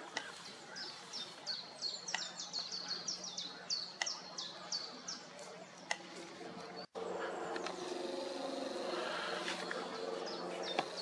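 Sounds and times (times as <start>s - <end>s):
steady low hum: 6.8s - 11.0s.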